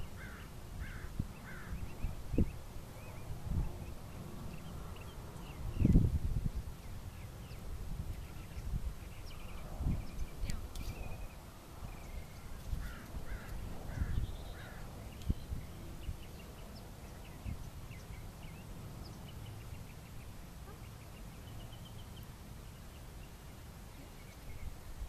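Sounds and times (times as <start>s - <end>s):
harsh bird calls: 0.0s - 6.0s, 8.3s - 24.8s.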